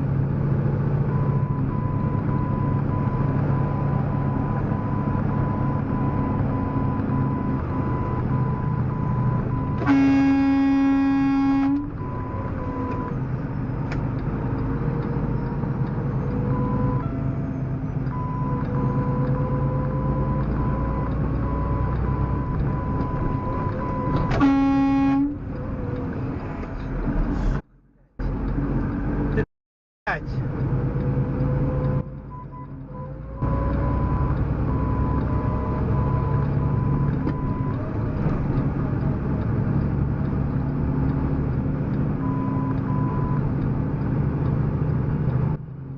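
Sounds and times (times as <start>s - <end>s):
vehicle horn blasts: 9.8s - 12.0s, 24.2s - 25.4s.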